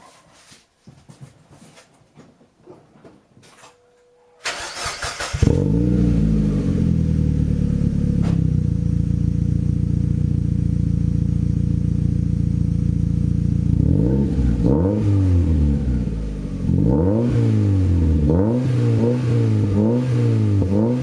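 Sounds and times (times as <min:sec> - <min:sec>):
car engine revving and idling: 0:05.0 - 0:21.0.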